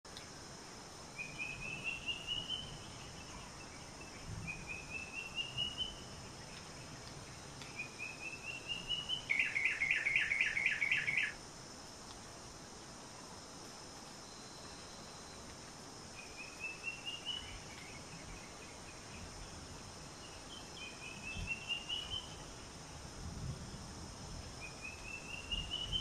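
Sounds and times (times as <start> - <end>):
faint insect hiss: 0.1 - 26.0
bird song: 1.2 - 11.4, 16.1 - 22.4, 24.6 - 26.0.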